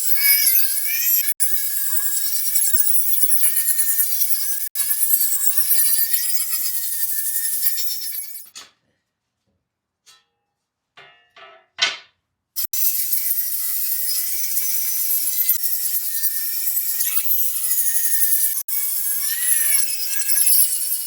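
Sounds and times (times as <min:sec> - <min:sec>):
electric power tool rasping: 0:00.0 - 0:08.5, 0:12.6 - 0:21.0.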